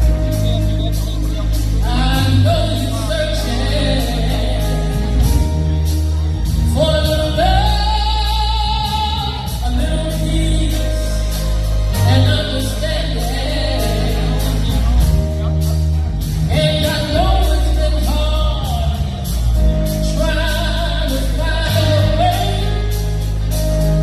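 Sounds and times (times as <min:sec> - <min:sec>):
bass guitar: 0:00.0 - 0:24.0
drums: 0:00.0 - 0:24.0
gospel singers: 0:01.8 - 0:05.8, 0:06.4 - 0:15.6.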